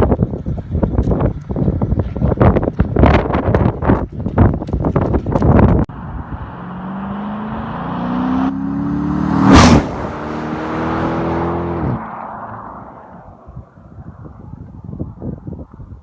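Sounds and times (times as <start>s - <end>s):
car accelerating past: 6.0s - 13.6s.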